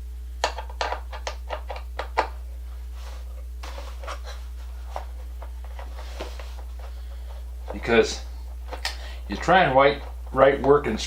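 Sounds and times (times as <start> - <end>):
steady low hum: 0.0 - 11.0
soft rustling: 2.5 - 10.9.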